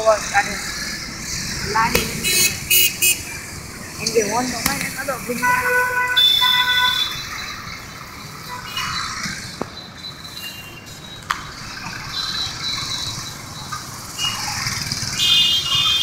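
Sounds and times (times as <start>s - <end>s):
road traffic: 0.0s - 16.0s
vehicle horn toots: 5.4s - 7.2s.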